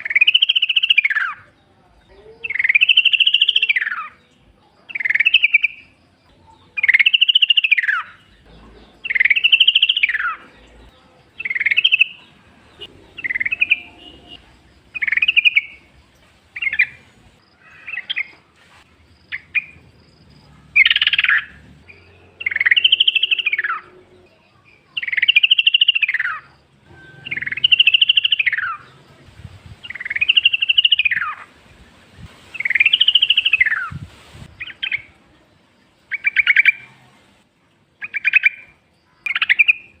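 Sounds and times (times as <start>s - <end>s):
bird calling arched phrases: 0.0s - 18.4s, 20.6s - 29.2s, 29.8s - 31.6s, 32.5s - 35.4s, 36.1s - 37.0s.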